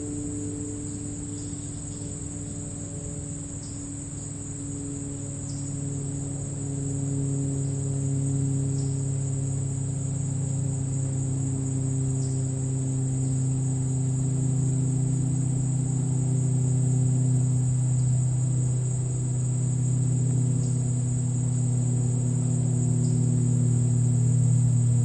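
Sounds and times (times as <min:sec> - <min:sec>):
crickets chirping: 0:00.0 - 0:25.0
low steady drone: 0:00.0 - 0:25.0.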